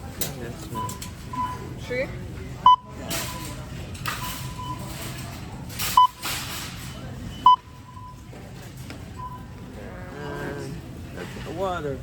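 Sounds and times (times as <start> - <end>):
barcode scanner beeping: 2.6 - 3.6, 7.4 - 8.2.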